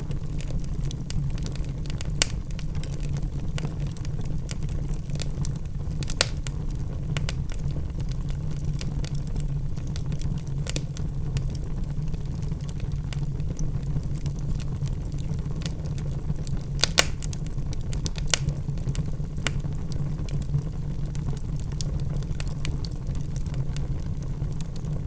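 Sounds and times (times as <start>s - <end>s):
fire flames rumbling: 0.0s - 25.0s
logs crackling and popping: 0.0s - 25.0s.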